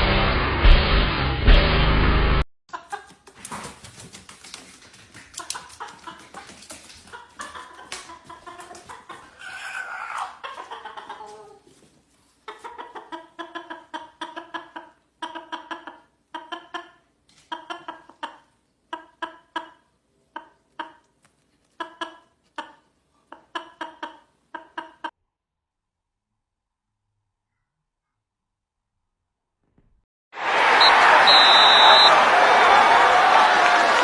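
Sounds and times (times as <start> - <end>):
chicken squawking and clucking: 4.8 - 21.1, 21.7 - 25.1.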